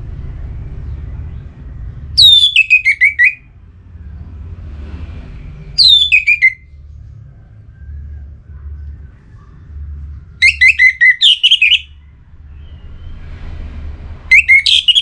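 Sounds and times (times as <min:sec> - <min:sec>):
low background rumble: 0:00.0 - 0:15.0
thrush singing: 0:08.1 - 0:15.0.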